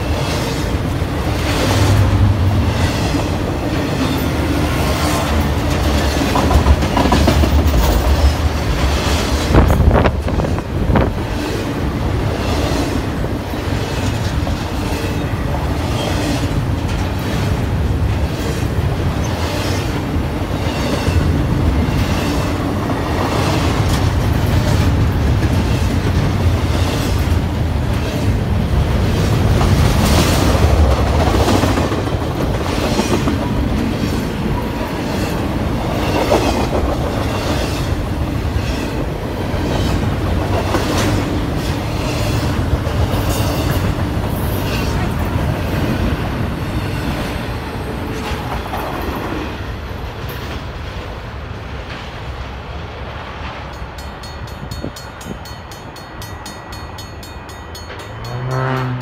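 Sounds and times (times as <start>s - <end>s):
train wheels clacking: 0.0s - 49.5s, 53.4s - 59.0s
freight train rumbling past: 0.0s - 59.0s.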